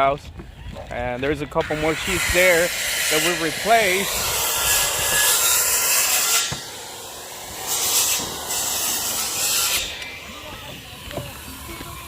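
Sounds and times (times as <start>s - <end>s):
gritty scraping: 0.7s - 6.7s.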